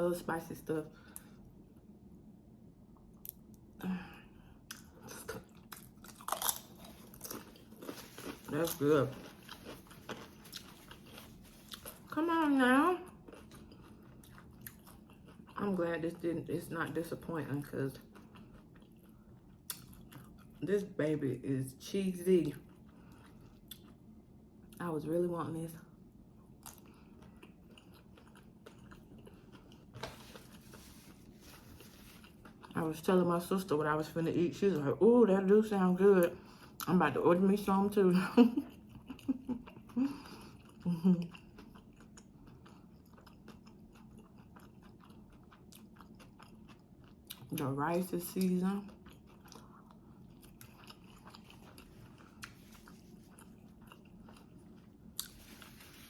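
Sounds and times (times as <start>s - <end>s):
quiet chewing: 4.7s - 12.2s, 13.0s - 15.6s, 17.9s - 20.6s, 22.6s - 24.1s, 26.6s - 32.8s, 38.8s - 47.6s, 48.3s - 56.0s.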